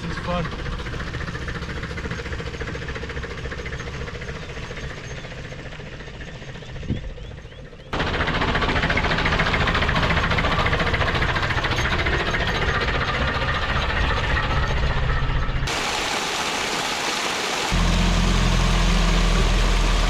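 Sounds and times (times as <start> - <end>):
truck engine rumbling and rattling: 0.0 - 20.0.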